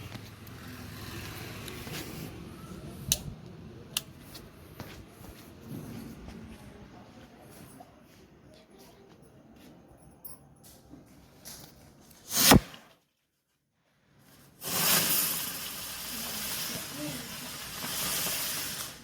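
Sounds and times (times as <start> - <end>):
firecracker burst: 12.2 - 12.9, 14.6 - 19.0
burning spinner hissing: 14.6 - 19.0.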